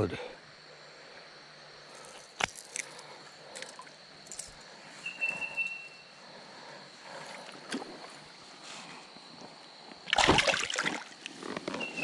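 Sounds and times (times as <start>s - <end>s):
creek-side bush ambience: 0.0s - 12.0s
whistled bird note: 5.0s - 6.1s.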